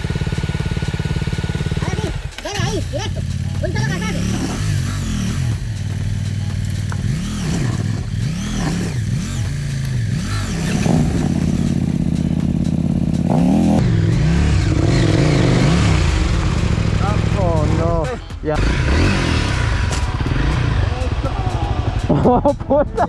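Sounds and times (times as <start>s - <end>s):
motorcycle engine revving: 0.0s - 23.0s
bike clattering: 2.3s - 13.0s.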